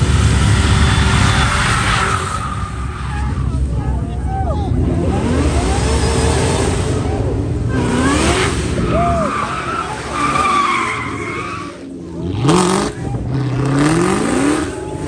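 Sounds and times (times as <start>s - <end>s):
tyres squealing: 0.0s - 4.5s, 7.1s - 13.1s
car engine revving: 0.0s - 15.0s.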